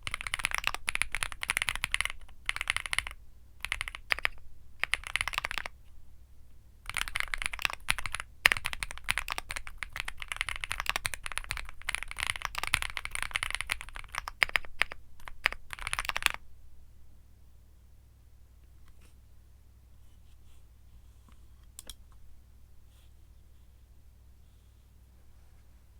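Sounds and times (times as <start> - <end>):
mechanical keyboard typing: 0.0 - 5.8, 6.9 - 16.4.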